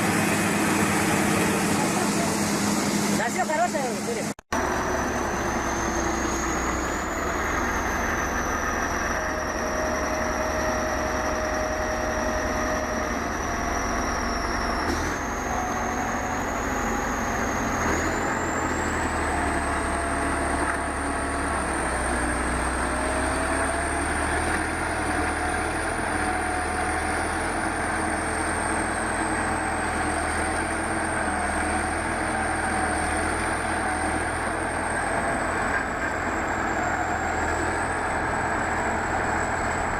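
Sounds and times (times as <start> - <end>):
heavy vehicle engine running: 0.0 - 39.9.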